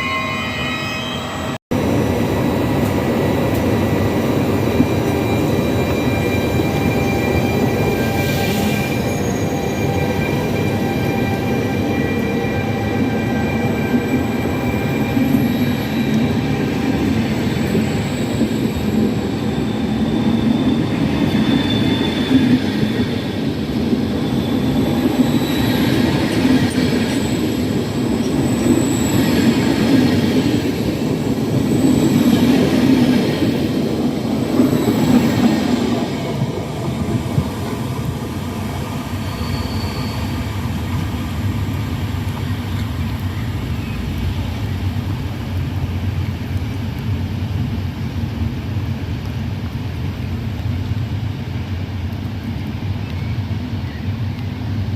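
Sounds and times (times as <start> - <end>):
high wheel squeals: 0.0 - 1.6, 3.1 - 27.6, 38.6 - 41.0
train rumbling along tracks: 0.0 - 54.9.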